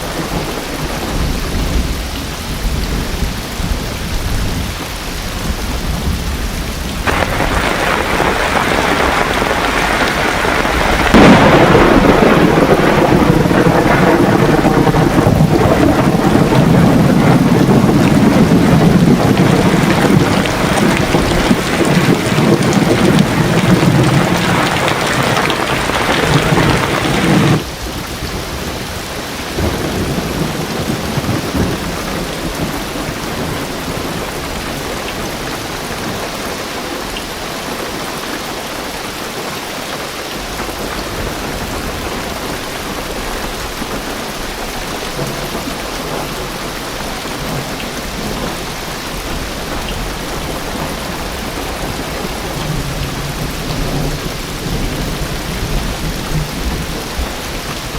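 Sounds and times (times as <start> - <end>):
thunder rumble: 0.0 - 36.6
rain drumming on car roof: 0.0 - 57.9.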